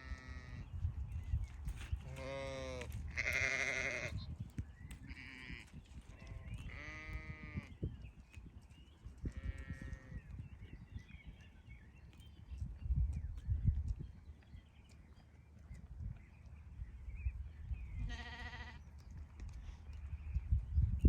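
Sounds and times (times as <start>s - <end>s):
sheep bleating: 2.1s - 4.2s, 6.7s - 7.6s, 18.1s - 18.8s.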